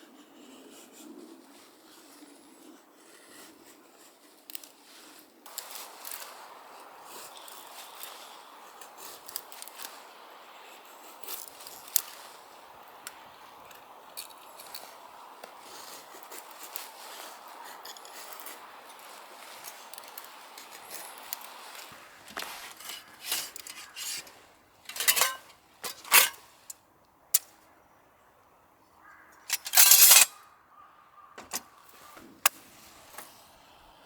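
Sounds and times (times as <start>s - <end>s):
faint steady hiss: 4.5s - 28.8s
metal cookware clinking: 22.8s - 24.3s, 24.9s - 26.4s, 29.5s - 30.3s, 31.4s - 31.6s.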